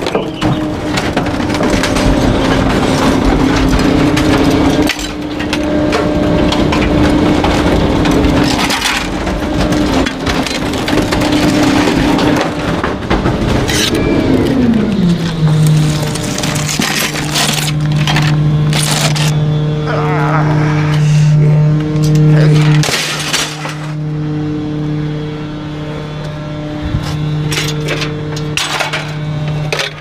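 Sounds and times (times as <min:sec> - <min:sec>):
truck engine and hydraulics hum: 0:00.0 - 0:30.0
waste cracking and crunching: 0:13.6 - 0:19.4.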